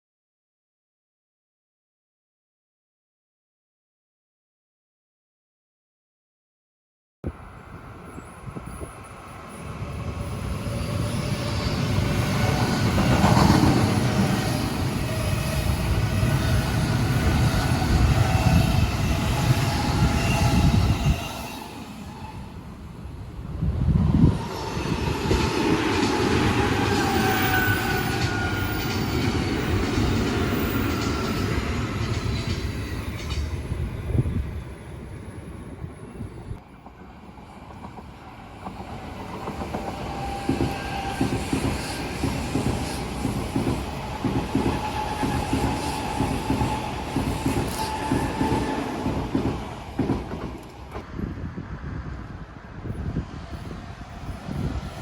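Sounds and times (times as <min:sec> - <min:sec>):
electric train passing: 0:07.3 - 0:55.0.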